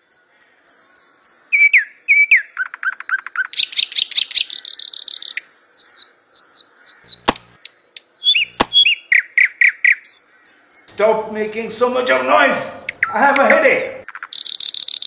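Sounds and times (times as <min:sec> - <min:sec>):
birds chirping and trilling: 0:00.0 - 0:15.0
sharp click: 0:07.2 - 0:08.8.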